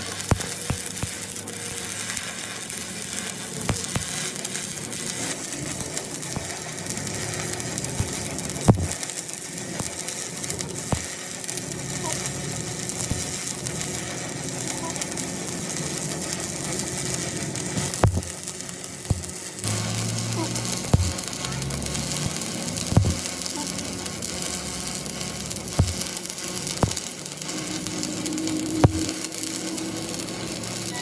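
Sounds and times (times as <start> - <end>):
steady hiss: 12.8 - 31.0.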